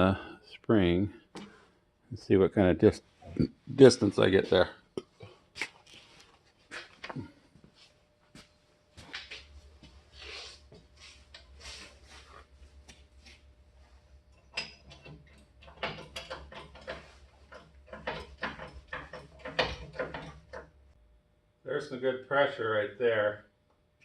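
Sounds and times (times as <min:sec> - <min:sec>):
jack handle clicking and clanking: 0:14.4 - 0:20.8.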